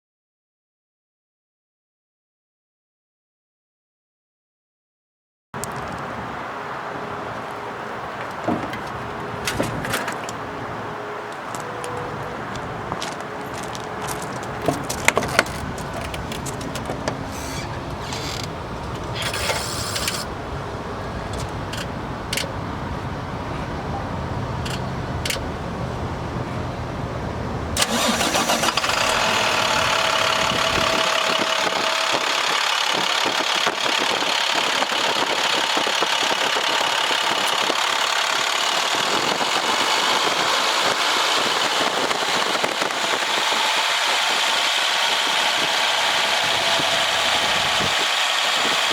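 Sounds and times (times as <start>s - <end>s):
diesel truck engine rumbling: 5.6s - 48.9s
engine clicks and knocks: 8.2s - 10.4s, 12.9s - 20.4s, 27.8s - 48.9s.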